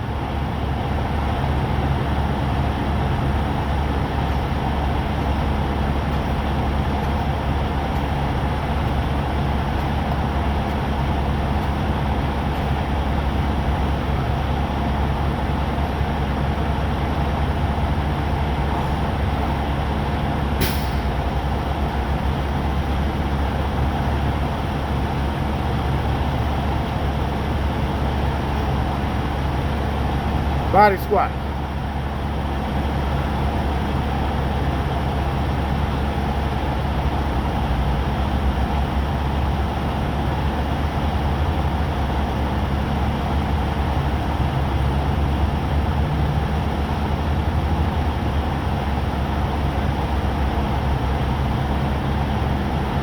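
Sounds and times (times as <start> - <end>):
diesel truck engine idling: 0.0 - 53.0
short sharp sound: 20.6 - 21.2.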